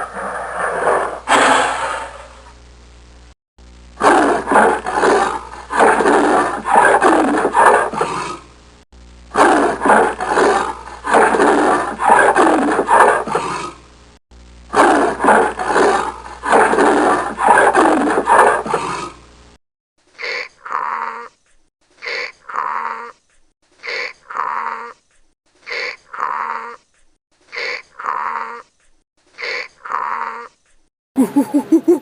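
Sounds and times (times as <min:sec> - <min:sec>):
big cat roaring: 0:04.0 - 0:08.4, 0:09.4 - 0:13.8, 0:14.8 - 0:19.2.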